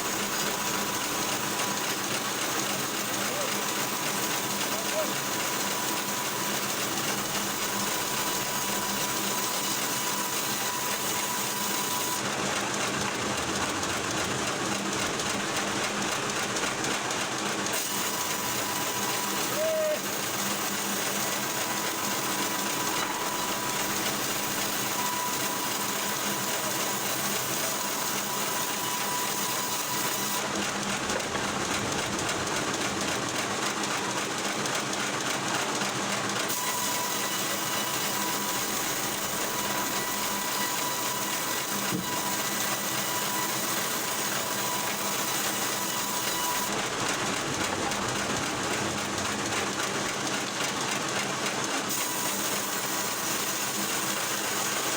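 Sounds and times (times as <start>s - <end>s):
wood-splitting machinery running: 0.0s - 54.9s.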